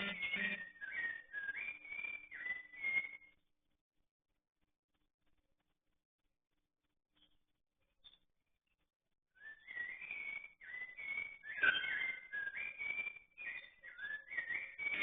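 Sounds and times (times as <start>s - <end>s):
songbird singing: 0.0s - 3.3s, 9.4s - 15.0s.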